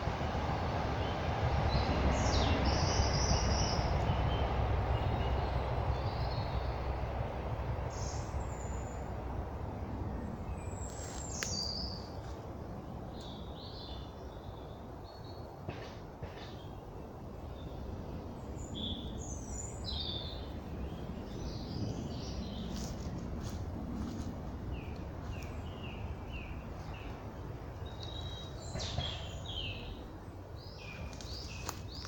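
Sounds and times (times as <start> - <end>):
distant train rumbling: 0.0 - 32.0
small birds chirping: 10.4 - 12.4, 16.2 - 32.0.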